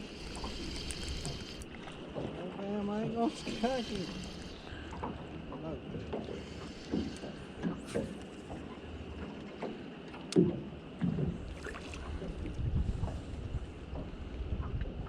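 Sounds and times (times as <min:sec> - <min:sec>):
water against boat hull: 0:00.0 - 0:15.0
wind on microphone: 0:12.0 - 0:15.0.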